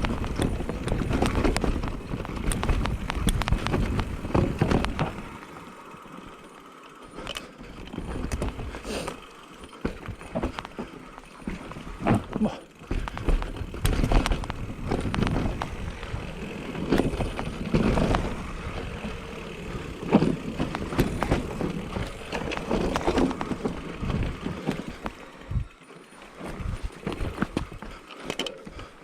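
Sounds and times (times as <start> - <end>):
bike tyres rolling over rocks: 0.0 - 29.0
chain and frame rattling: 7.0 - 29.0.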